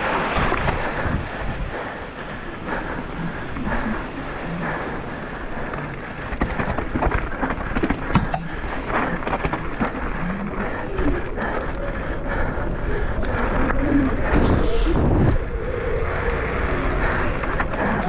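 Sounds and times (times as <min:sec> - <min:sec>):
bike tyres on dirt and rock: 0:00.0 - 0:18.0
wind buffeting microphone: 0:00.0 - 0:18.0
bike clacking and rattling: 0:05.6 - 0:12.2.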